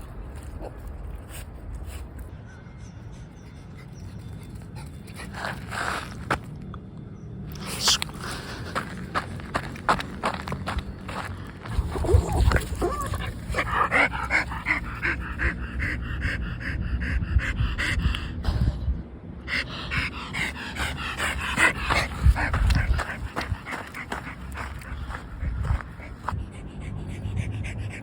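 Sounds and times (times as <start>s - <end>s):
dog panting rapidly: 8.1s - 18.4s, 19.5s - 28.0s.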